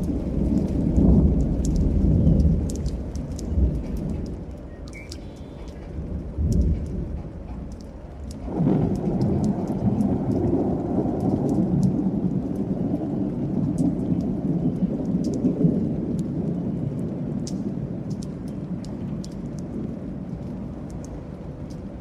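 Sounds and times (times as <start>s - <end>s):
rolling thunder: 0.0s - 22.0s
steady rain: 0.0s - 22.0s
sharp drop ticks: 1.6s - 5.8s.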